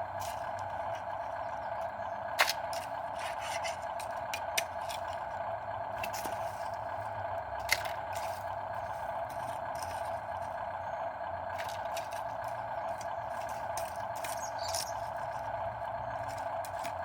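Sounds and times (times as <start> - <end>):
toy truck motor whining: 0.0 - 17.0
clicks and scrapes of gravel: 2.4 - 5.3, 7.6 - 10.7, 11.5 - 17.0.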